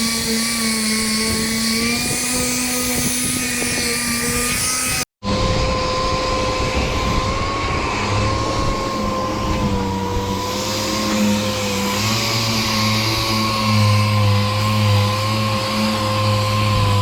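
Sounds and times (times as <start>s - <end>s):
machine whining over low hum: 3.6s - 17.0s.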